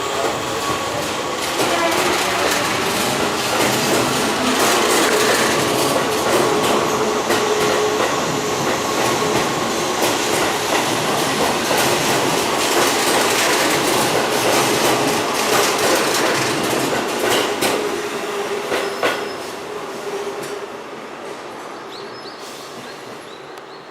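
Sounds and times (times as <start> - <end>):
train wheels clattering: 0.1 - 18.0.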